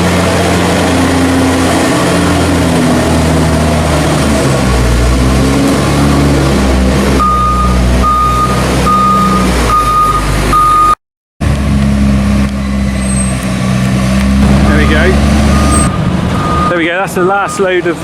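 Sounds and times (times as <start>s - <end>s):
diesel engine running: 0.0s - 18.0s
reversing alarm beeping: 7.2s - 11.0s, 15.5s - 17.8s.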